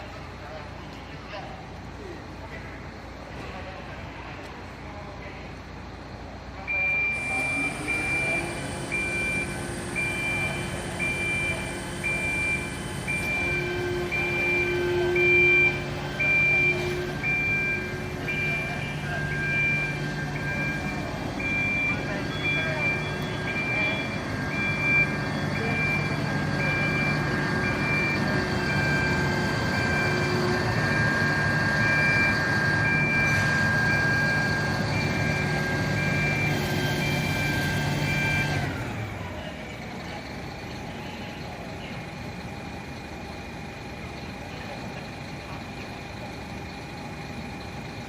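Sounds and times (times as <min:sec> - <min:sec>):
fire truck engine running: 0:00.0 - 0:48.0
warning beeper: 0:06.7 - 0:38.8.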